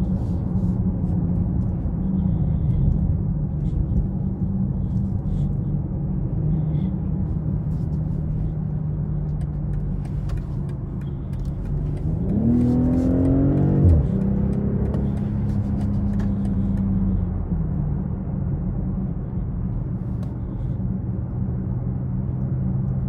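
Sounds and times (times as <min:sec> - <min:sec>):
road noise: 0:00.0 - 0:23.0
car engine accelerating: 0:06.2 - 0:18.2.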